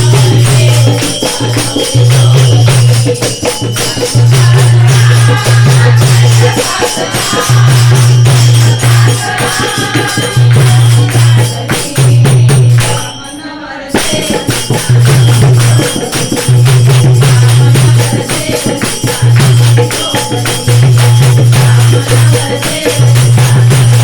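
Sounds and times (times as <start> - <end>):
rhythmic hand percussion: 0.0 - 24.0
women's group singing devotional music: 0.0 - 24.0.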